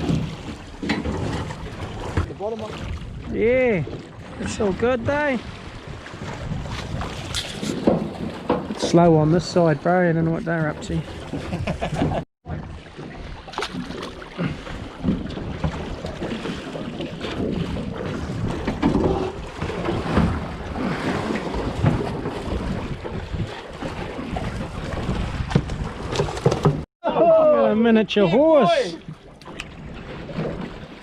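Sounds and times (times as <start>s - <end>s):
wind buffeting microphone: 0.0s - 9.8s, 15.1s - 26.8s
waves washing against boat: 0.0s - 26.9s, 28.1s - 31.0s.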